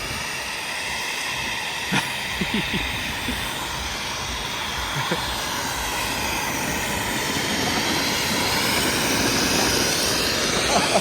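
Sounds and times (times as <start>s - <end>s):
snowboard sliding over snow: 0.0s - 11.0s.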